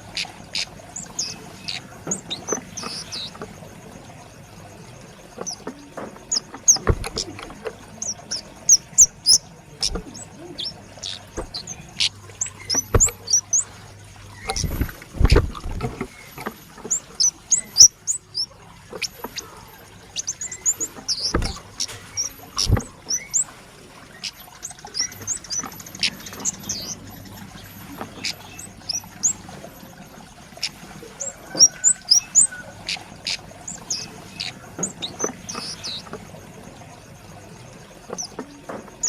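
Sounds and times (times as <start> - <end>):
bird chirping and twittering: 0.0 - 3.5, 5.1 - 36.2, 38.0 - 39.0
dull knocks and thumps: 5.4 - 8.1, 9.8 - 10.3, 11.0 - 13.6, 14.4 - 17.0, 20.2 - 23.4.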